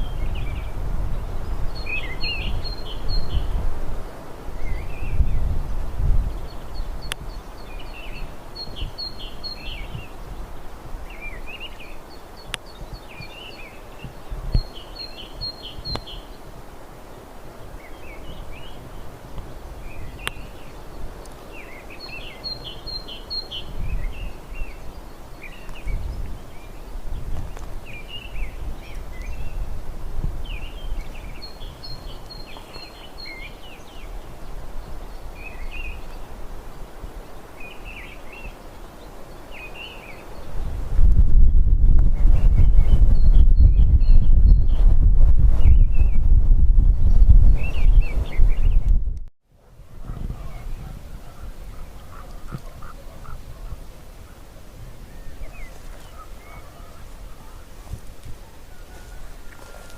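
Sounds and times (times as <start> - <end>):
steady background hiss: 0.0 - 40.7
songbirds chirping and trilling: 0.0 - 44.9, 46.9 - 49.0, 49.6 - 59.9.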